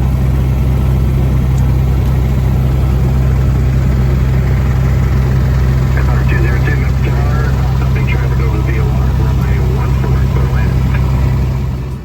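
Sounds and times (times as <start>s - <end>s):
propeller airplane engine drone: 0.0s - 12.0s.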